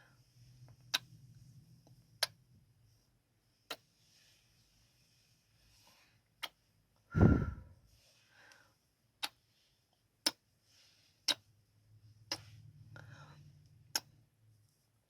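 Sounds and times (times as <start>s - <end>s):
breathy mouth sounds: 11.2s - 11.5s, 12.3s - 14.2s.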